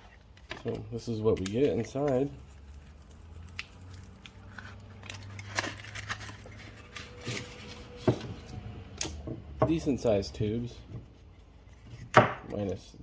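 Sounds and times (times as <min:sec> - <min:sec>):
paper rustling: 0:00.0 - 0:08.6
cardboard tubes knocking: 0:11.9 - 0:12.6.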